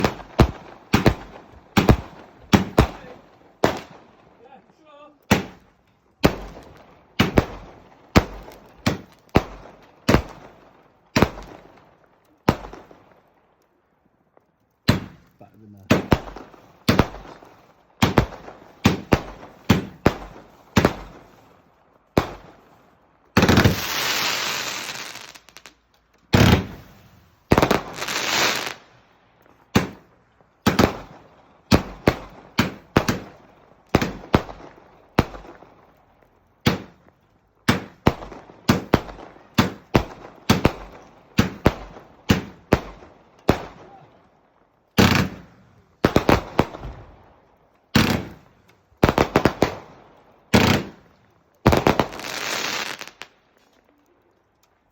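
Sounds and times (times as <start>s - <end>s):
fireworks banging: 0.0s - 4.0s, 4.7s - 11.7s, 14.8s - 21.4s, 23.3s - 28.8s, 29.5s - 35.7s, 36.6s - 44.0s, 45.0s - 47.2s, 47.9s - 51.1s, 51.7s - 53.3s.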